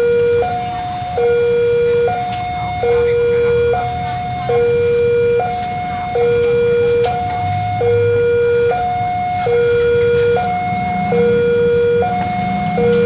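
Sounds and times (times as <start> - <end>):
level crossing two-tone alarm: 0.0 - 13.0
low engine hum: 7.2 - 13.0.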